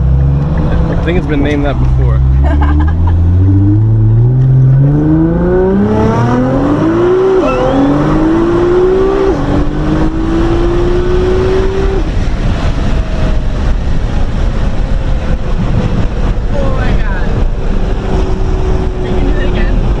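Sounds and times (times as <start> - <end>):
car engine accelerating: 0.0 - 20.0
road and wind noise: 0.0 - 20.0.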